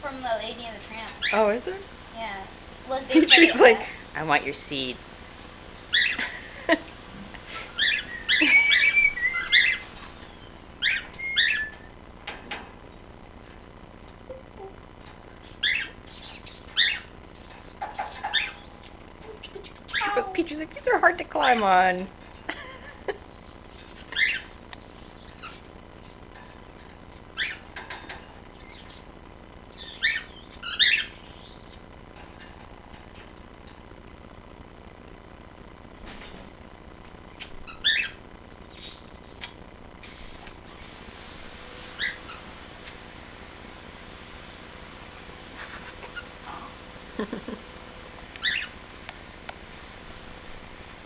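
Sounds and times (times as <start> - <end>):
cockatiel chirping and whistling: 5.9 - 6.2, 7.8 - 11.9, 15.6 - 17.1, 17.9 - 18.7, 24.1 - 24.5, 27.4 - 27.7, 29.8 - 31.6, 37.6 - 38.2, 42.0 - 42.4, 48.4 - 48.7.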